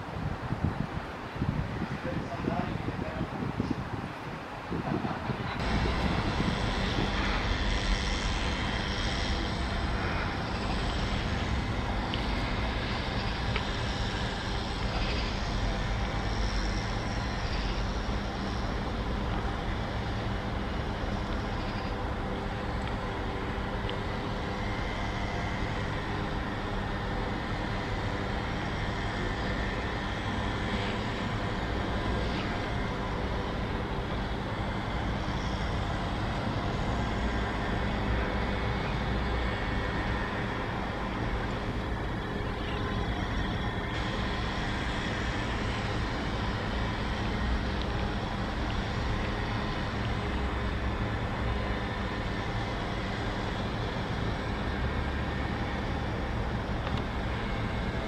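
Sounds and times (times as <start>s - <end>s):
train approaching rumble and hum: 4.1s - 58.0s.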